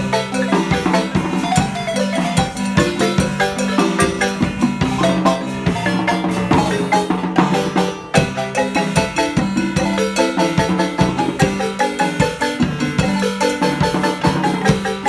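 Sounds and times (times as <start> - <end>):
marimba music with percussion: 0.0 - 15.0.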